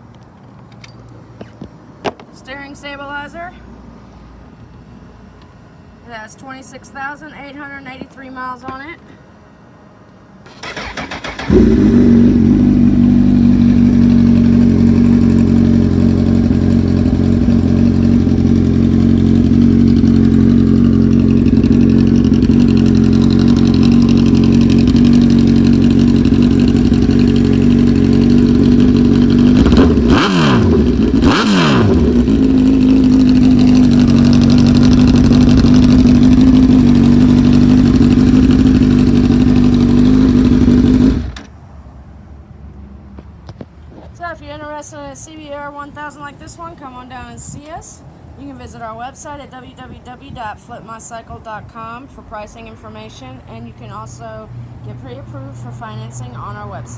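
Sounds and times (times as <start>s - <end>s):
motorcycle engine idling and revving: 10.5s - 41.7s.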